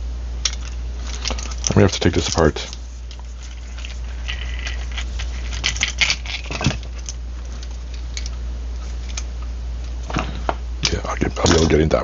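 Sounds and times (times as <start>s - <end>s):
steady low hum: 0.0s - 12.0s
small metal parts clinking: 0.4s - 9.3s.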